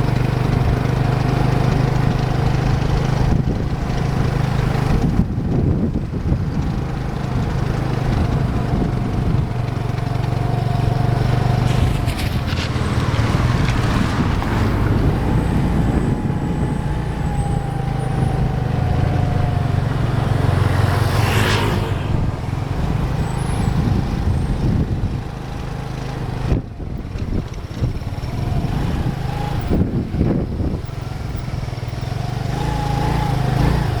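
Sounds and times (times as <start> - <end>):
traffic engines running: 0.0 - 34.0
vehicles passing: 0.0 - 34.0
brief sharp hiss: 11.6 - 12.9.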